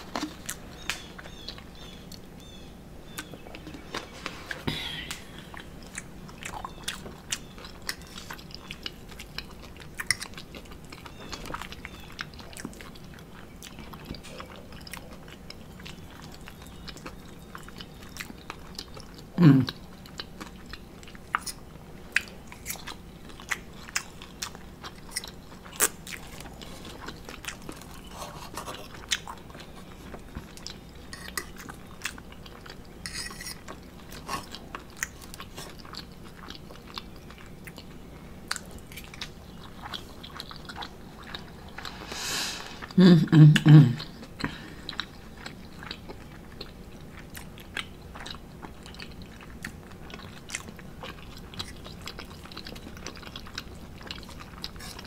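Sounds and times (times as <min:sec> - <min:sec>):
person chewing: 0:00.0 - 0:55.0
low vocal sound: 0:19.4 - 0:19.8, 0:42.0 - 0:44.7.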